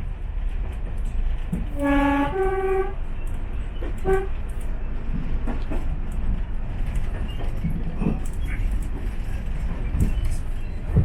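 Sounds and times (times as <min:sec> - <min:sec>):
train rumbling: 0:00.0 - 0:11.0
locomotive two-tone horn: 0:01.7 - 0:03.2, 0:03.9 - 0:04.4.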